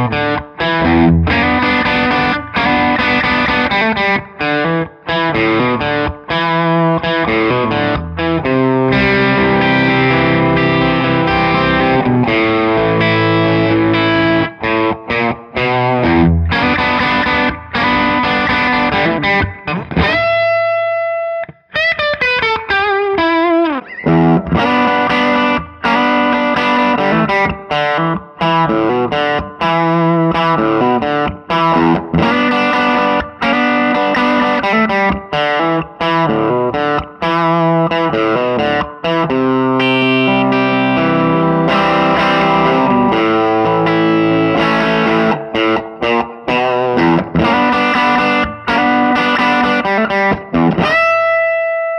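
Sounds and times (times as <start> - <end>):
overdriven electric guitar riff: 0.0 - 51.9.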